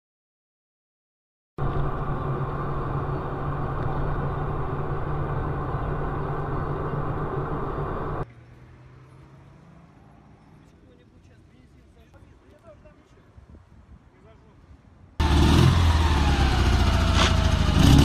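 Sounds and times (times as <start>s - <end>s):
vehicle engine running: 1.6s - 8.2s, 15.2s - 18.0s
road noise: 1.6s - 18.0s.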